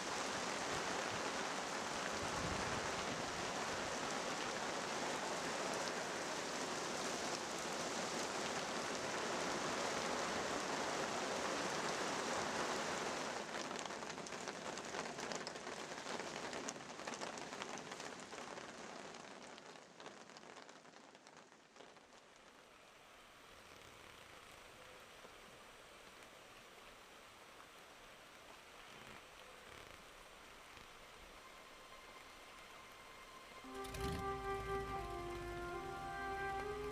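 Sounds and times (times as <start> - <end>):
heavy rain hissing: 0.0 - 18.3, 29.4 - 36.9.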